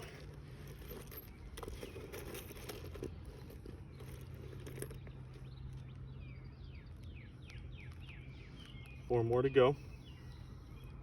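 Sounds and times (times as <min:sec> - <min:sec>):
bird chirping: 0:03.1 - 0:11.0.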